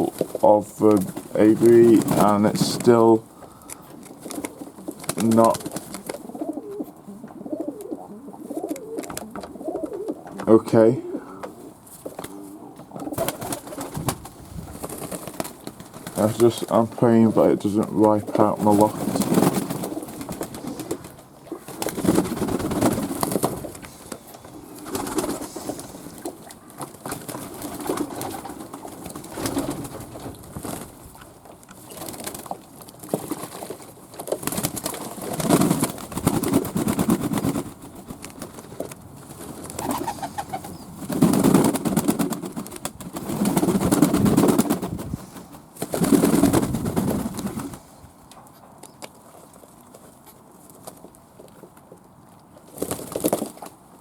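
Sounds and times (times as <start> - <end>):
pigeons cooing: 3.3 - 15.8, 18.5 - 26.8, 39.6 - 42.5.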